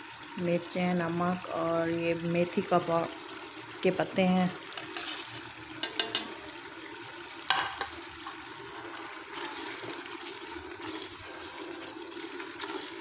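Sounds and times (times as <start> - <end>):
masala sizzling in hot oil: 0.0 - 13.0
spatula scraping metal pot: 4.7 - 6.3, 9.2 - 11.2.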